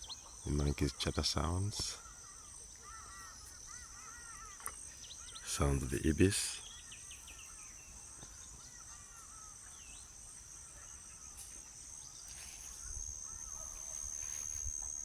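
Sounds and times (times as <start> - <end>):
faint bird calls: 0.0 - 15.0
insect trill: 0.0 - 15.0.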